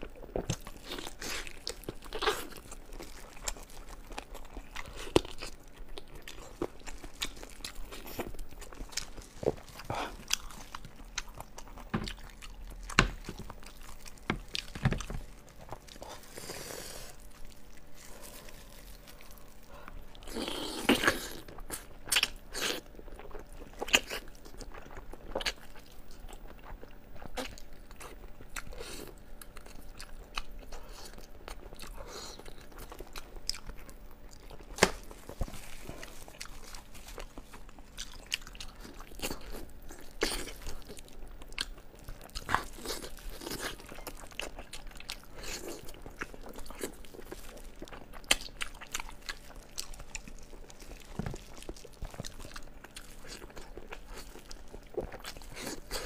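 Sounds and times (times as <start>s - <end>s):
wet chewing and biting: 0.0s - 56.0s.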